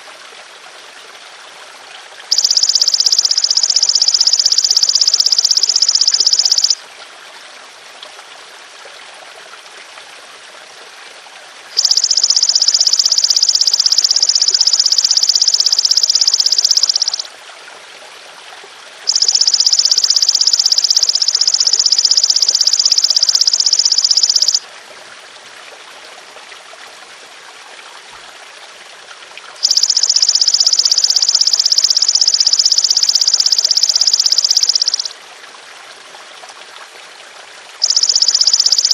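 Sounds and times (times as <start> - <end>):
trickling water: 0.0 - 38.9
grasshopper buzzing calls: 11.8 - 17.3, 19.1 - 24.6.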